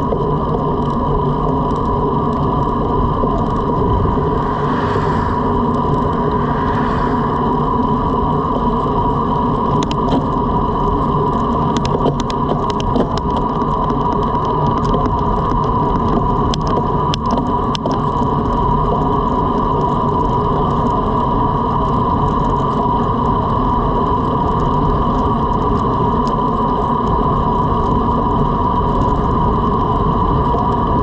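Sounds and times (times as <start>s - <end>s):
steady hum: 0.0s - 13.3s
tyre noise on road: 0.0s - 31.0s
wind rushing over microphone: 1.0s - 23.6s.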